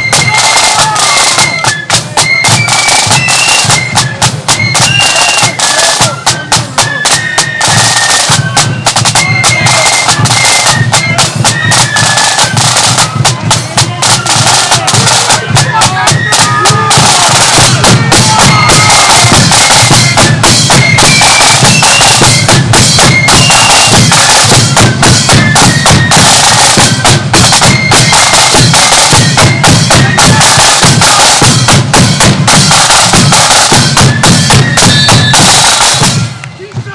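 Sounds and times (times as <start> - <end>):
high flute melody: 0.0 - 36.9
rapid snare drumming: 0.0 - 36.9
heavy bass drum: 12.7 - 36.9.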